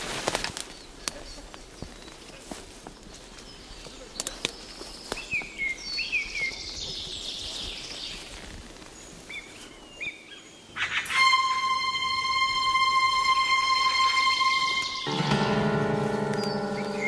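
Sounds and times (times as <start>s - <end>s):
small birds chirping: 0.6s - 11.1s, 14.8s - 17.0s.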